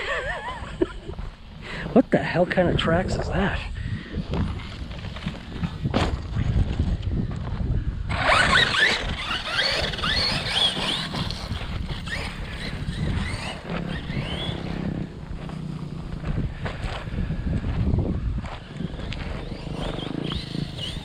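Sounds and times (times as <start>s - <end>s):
toy truck motor whining: 8.1s - 15.1s, 18.4s - 21.0s
tyres rumbling on dirt: 8.1s - 21.0s.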